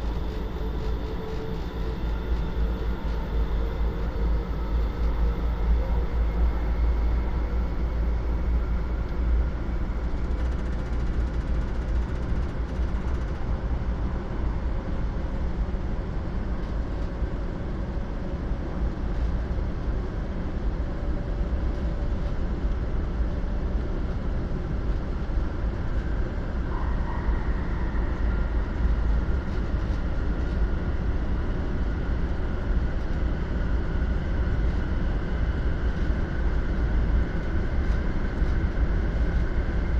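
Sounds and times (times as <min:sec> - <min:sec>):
high whine: 0:00.0 - 0:12.0
train car rumble: 0:00.0 - 0:21.1
faint whining tones: 0:00.0 - 0:39.9.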